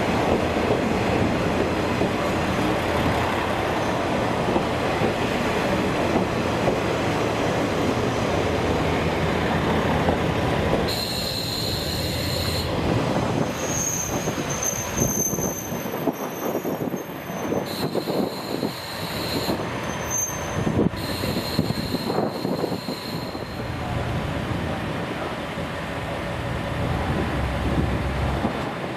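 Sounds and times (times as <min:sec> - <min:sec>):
diesel railcar rumbling past: 0:00.0 - 0:28.9
wheel or brake squealing: 0:13.5 - 0:23.6.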